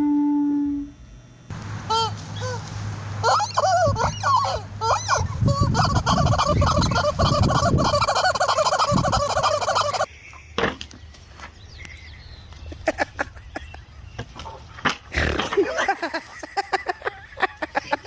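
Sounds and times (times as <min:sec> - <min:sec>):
poultry calling: 0:01.9 - 0:10.1.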